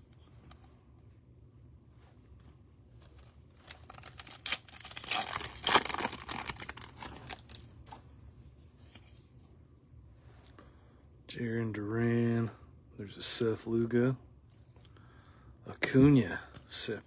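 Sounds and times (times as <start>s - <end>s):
foil pack tearing and crinkling: 3.5s - 7.7s.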